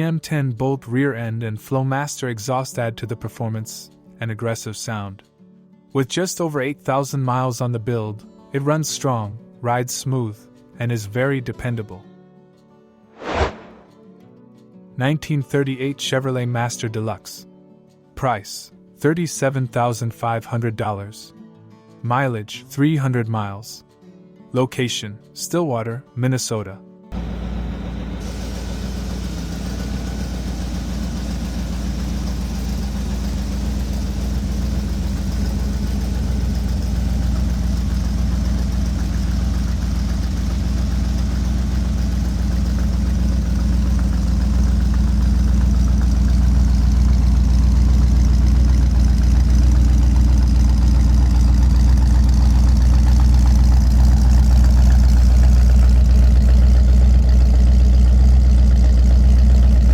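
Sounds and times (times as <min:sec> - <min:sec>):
car engine idling: 0:27.2 - 0:59.9.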